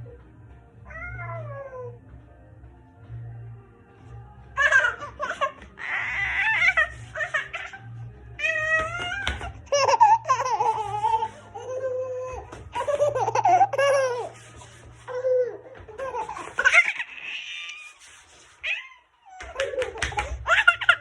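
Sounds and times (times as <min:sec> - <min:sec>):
small child laughing: 0:04.6 - 0:07.8, 0:09.7 - 0:11.9, 0:12.7 - 0:14.4, 0:15.9 - 0:17.8, 0:19.4 - 0:21.0.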